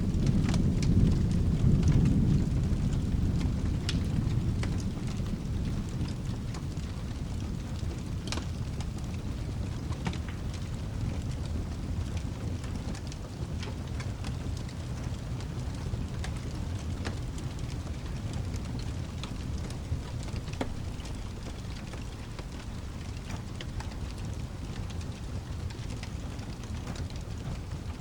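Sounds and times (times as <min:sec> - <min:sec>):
fire crackling pops: 0:00.0 - 0:28.0
rain rumbling: 0:00.0 - 0:28.0.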